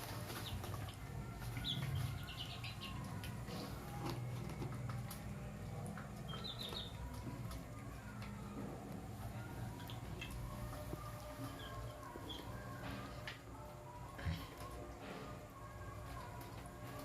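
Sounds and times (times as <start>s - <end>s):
chickens peeping: 0.0s - 8.4s.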